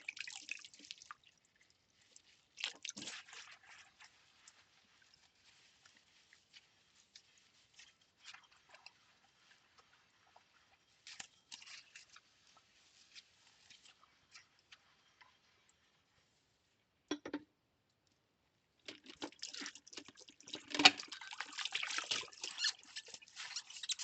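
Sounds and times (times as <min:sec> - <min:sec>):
soap suds crackling: 0:00.0 - 0:14.6, 0:18.9 - 0:24.0
soft scrubbing of bowls: 0:00.0 - 0:16.8, 0:18.9 - 0:24.0
ceramic clicks and taps: 0:17.1 - 0:17.5.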